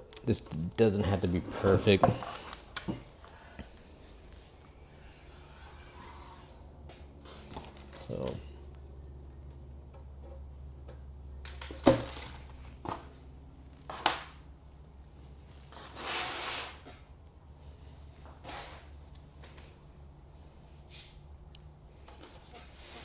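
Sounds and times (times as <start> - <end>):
low steady hum: 0.0 - 15.8.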